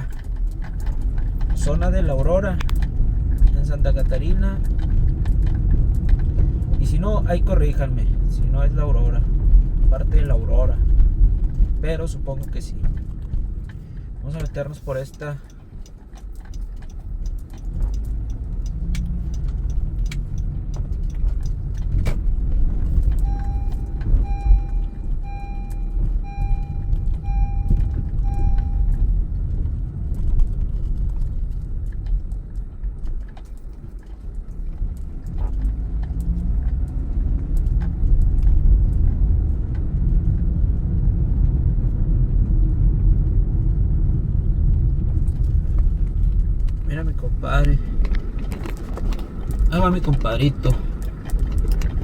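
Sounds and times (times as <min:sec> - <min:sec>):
car engine and road rumble: 0:00.0 - 0:52.0
evenly spaced beeps: 0:23.2 - 0:29.1.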